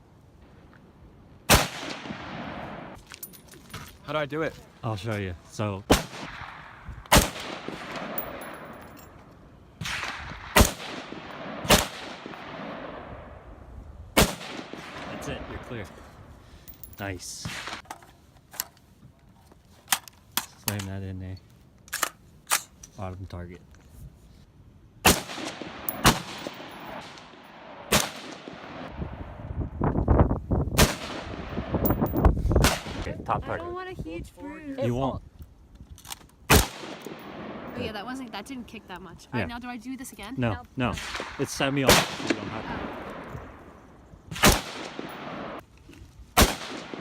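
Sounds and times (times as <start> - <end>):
rifle shots with echo: 1.5 - 3.0, 5.9 - 8.8, 9.8 - 13.4, 14.2 - 15.8, 25.0 - 29.2, 30.8 - 33.1, 36.5 - 37.8, 40.9 - 43.6, 44.3 - 45.6, 46.4 - 47.0.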